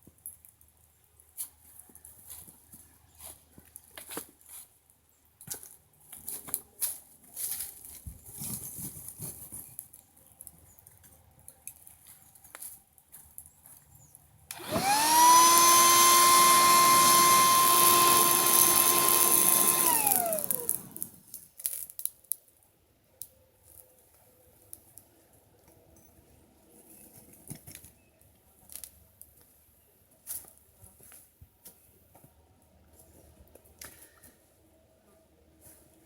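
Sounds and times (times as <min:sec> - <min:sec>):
electric air pump whining: 0:14.5 - 0:21.2.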